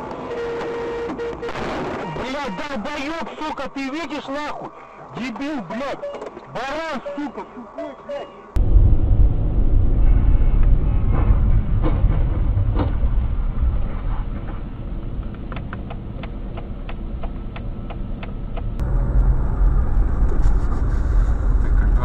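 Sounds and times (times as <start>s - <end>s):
car engine and road rumble: 8.4s - 22.0s
sharp clicks and ticks: 15.2s - 20.4s.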